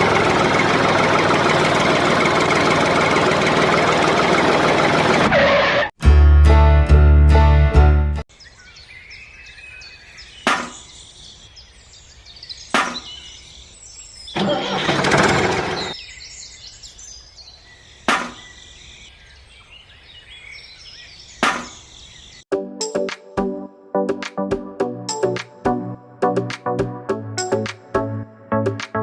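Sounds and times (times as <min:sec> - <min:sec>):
birds chirping: 0:08.3 - 0:22.4
sharp knocks: 0:10.5 - 0:10.8, 0:12.8 - 0:13.1, 0:18.1 - 0:18.4, 0:21.4 - 0:21.8.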